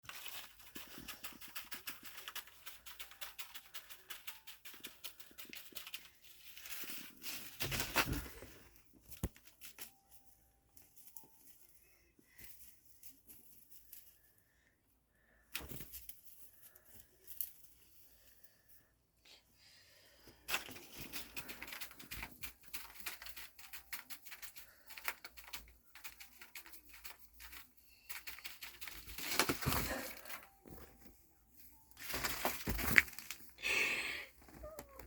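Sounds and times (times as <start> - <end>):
bubble wrap crackling: 0.0 - 14.3, 20.6 - 31.1, 31.8 - 35.0.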